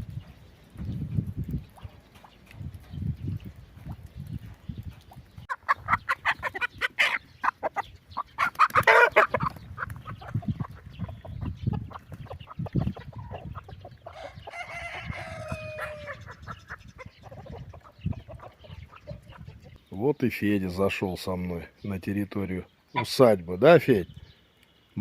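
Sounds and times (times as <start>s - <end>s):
chickens clucking: 1.4s - 21.6s
rooster crowing: 14.1s - 16.2s.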